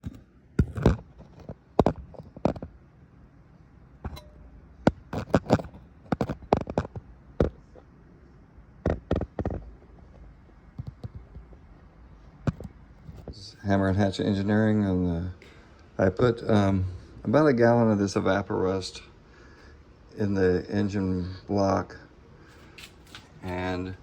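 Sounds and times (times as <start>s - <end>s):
low steady background noise: 0.0s - 24.0s
sharp knocks and clatters: 4.0s - 7.8s, 8.8s - 10.2s.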